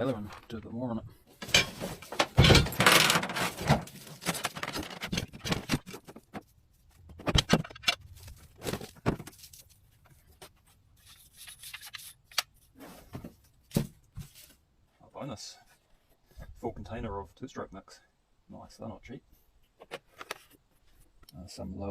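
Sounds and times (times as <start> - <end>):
objects scraping in metal boat: 1.4 - 5.0.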